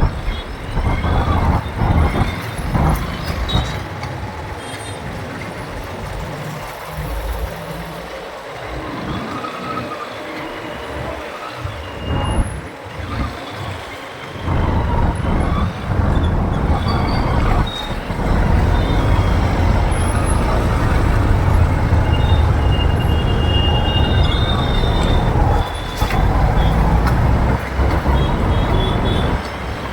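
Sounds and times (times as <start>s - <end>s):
wind rumbling on microphone: 0.0s - 3.9s, 11.9s - 13.8s, 14.4s - 29.9s
motorbike engine and road noise: 0.0s - 4.6s, 14.4s - 29.9s
vehicle horns: 14.5s - 29.9s.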